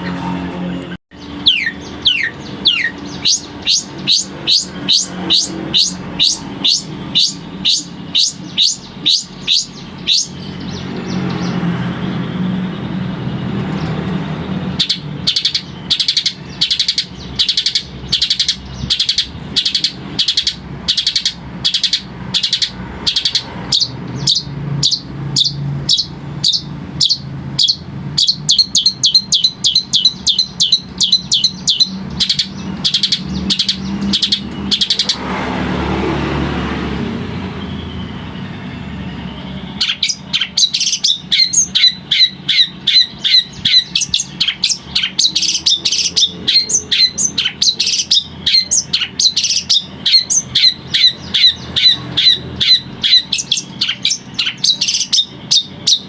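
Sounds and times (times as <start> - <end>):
shrike singing high calls: 0.0 - 56.0
broad rushing noise: 31.9 - 38.6.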